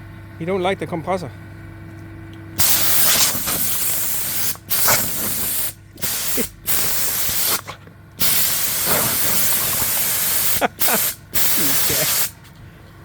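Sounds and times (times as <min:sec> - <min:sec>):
compressed air hissing bursts: 0:02.6 - 0:12.4.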